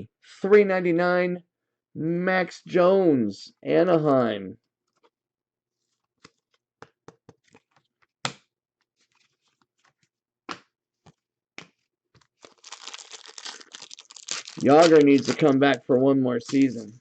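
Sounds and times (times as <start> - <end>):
cards clicking and tapping on table: 6.2 - 8.5, 10.5 - 11.8
foil wrapper tearing and crinkling: 12.4 - 15.8, 16.4 - 17.0.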